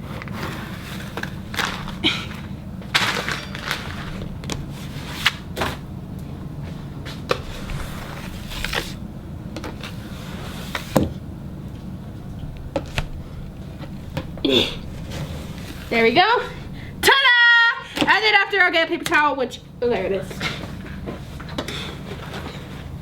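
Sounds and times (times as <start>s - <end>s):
spatula scraping slime: 0.0s - 2.0s, 7.3s - 9.0s, 9.8s - 11.0s, 14.9s - 16.4s
steady low hum: 0.0s - 23.0s.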